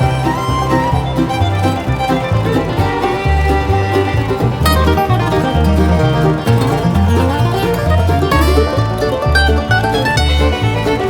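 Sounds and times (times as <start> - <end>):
bass notes: 0.0 - 11.0
bluegrass banjo music: 0.0 - 11.0.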